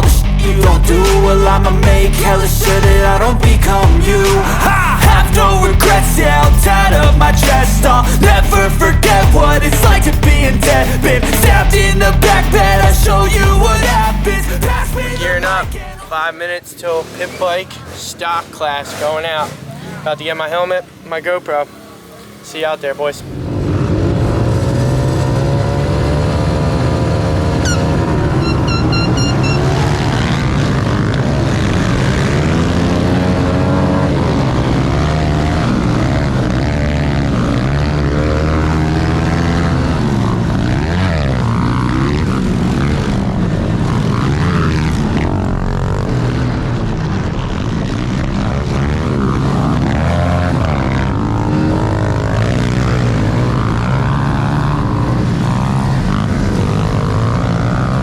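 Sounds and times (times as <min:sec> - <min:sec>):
small motorbike engines revving: 0:00.0 - 0:58.0
low engine drone: 0:23.2 - 0:31.7.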